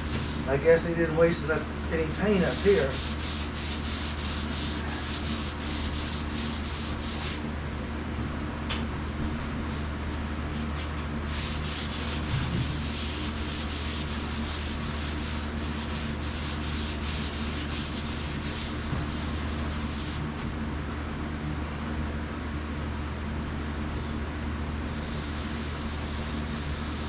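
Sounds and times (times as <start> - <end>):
sandpaper rubbing on metal: 0.0 - 0.5, 2.2 - 7.4, 11.3 - 20.2, 24.8 - 27.0.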